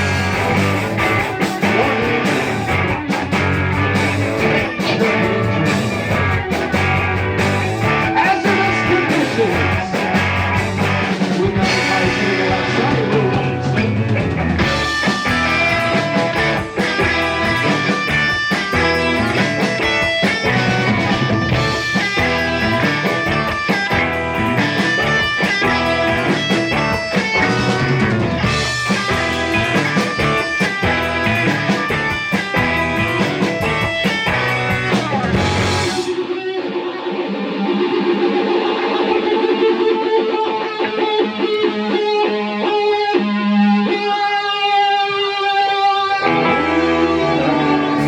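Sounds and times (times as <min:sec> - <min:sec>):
live rock band playing: 0:00.0 - 0:48.0.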